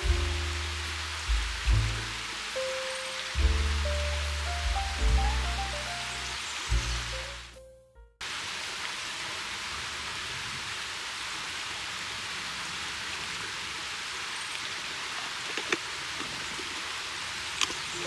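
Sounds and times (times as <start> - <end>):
outdoor hiss: 0.0 - 7.6, 8.2 - 18.0
music: 0.0 - 8.2.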